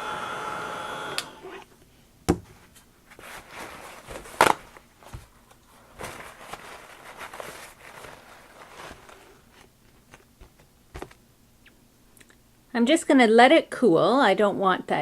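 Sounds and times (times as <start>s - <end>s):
light rustling: 2.5s - 11.2s.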